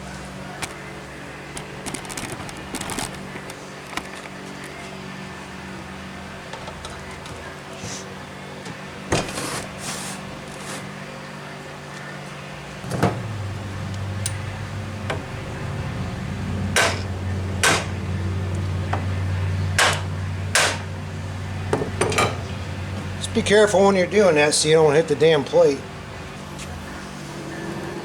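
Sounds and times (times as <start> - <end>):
steady low hum: 12.6 - 28.0.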